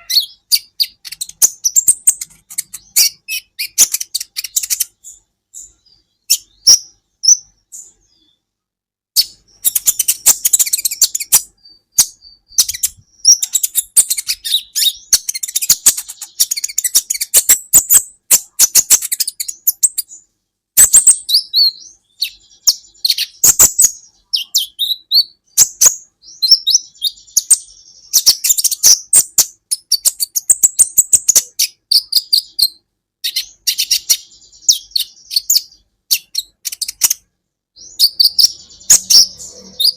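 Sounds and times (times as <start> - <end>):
sunbird twittering: 37.8 - 39.9.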